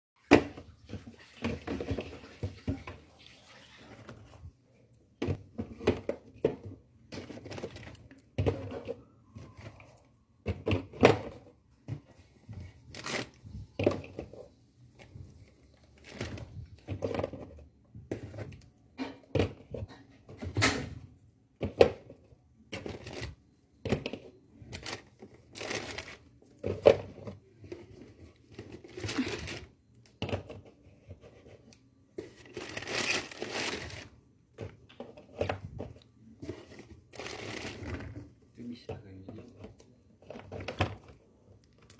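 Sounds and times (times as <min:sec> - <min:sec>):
plastic bags rustling: 0:07.1 - 0:09.9, 0:12.5 - 0:17.5, 0:22.8 - 0:23.4, 0:24.6 - 0:29.8, 0:32.2 - 0:34.2, 0:35.3 - 0:38.2.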